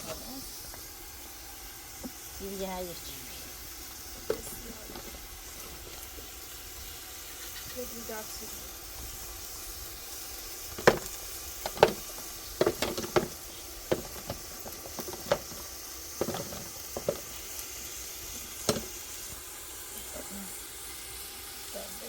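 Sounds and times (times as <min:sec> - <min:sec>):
food sizzling in a pan: 0:00.0 - 0:22.0
utensil knocking against pan: 0:10.8 - 0:17.4, 0:18.6 - 0:19.0.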